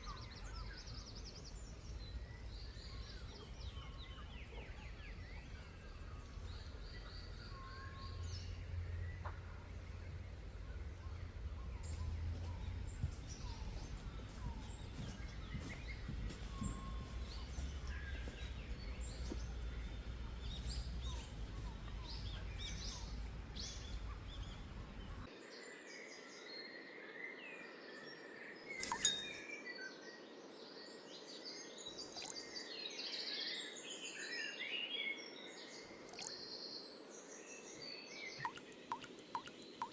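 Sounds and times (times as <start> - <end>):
low wind-like rumble: 0.0 - 25.3
small birds chirping: 0.0 - 25.3, 31.2 - 39.9.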